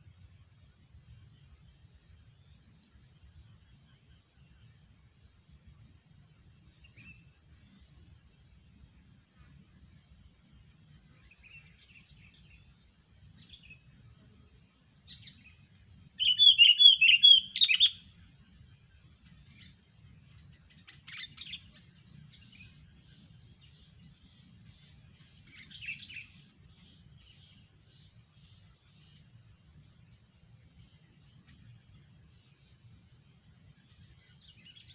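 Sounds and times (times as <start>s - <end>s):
bulbul calling: 16.2s - 18.0s.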